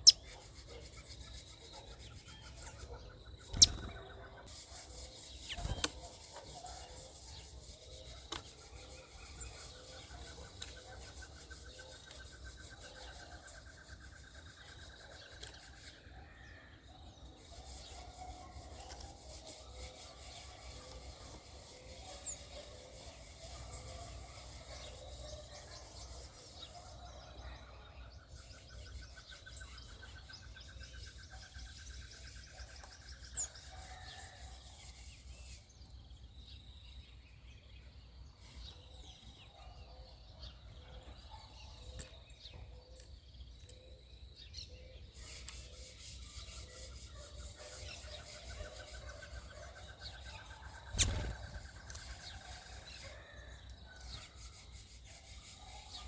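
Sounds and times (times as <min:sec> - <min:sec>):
bird pulsing trill: 0:02.2 - 0:04.3, 0:50.8 - 0:51.8
short high bird chirps: 0:03.4 - 0:04.0, 0:50.9 - 0:51.5.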